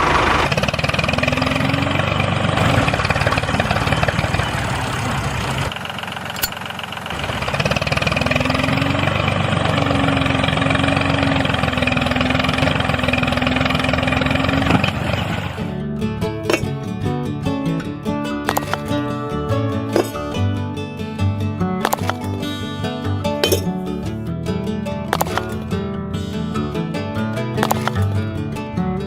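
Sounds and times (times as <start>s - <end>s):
motor humming: 0.0s - 15.6s.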